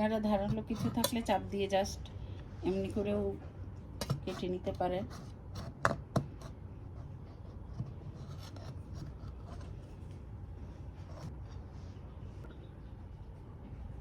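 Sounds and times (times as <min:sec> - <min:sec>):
knife scraping through bread: 0:00.4 - 0:01.2, 0:04.0 - 0:10.0.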